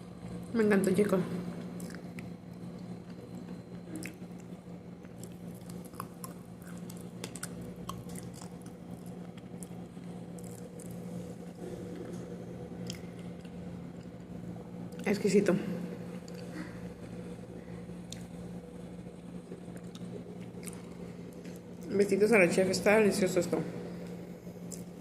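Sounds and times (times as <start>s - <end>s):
low steady hum: 0.0s - 25.0s
chewing crunchy clay: 1.6s - 14.2s.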